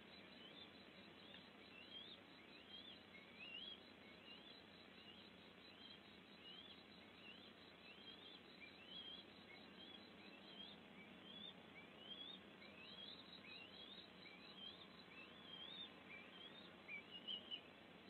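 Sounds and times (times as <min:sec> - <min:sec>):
steady low hiss: 0:00.0 - 0:18.0.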